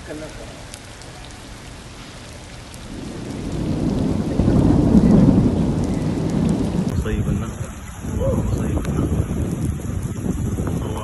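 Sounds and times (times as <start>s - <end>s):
heavy rain: 0.0s - 11.0s
thunder rumbling: 2.8s - 11.0s.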